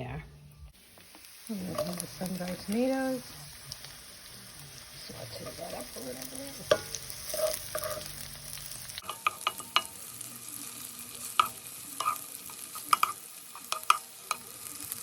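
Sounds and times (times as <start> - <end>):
vegetables sizzling in oil: 0.7 - 15.0
utensil scraping a pan: 6.6 - 8.3, 11.4 - 12.3.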